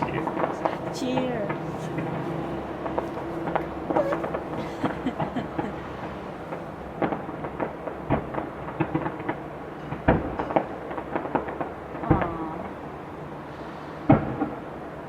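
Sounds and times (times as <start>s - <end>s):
distant fireworks bangs: 0.0s - 15.0s.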